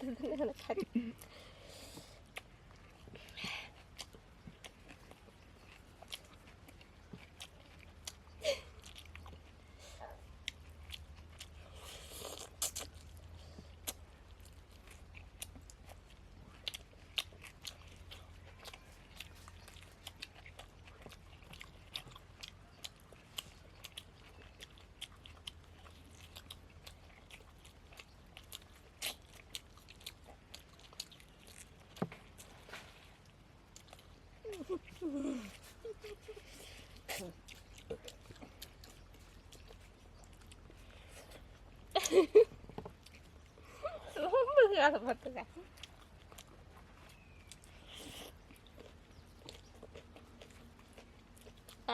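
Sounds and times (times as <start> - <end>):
wet chewing smacks: 0.0 - 51.9.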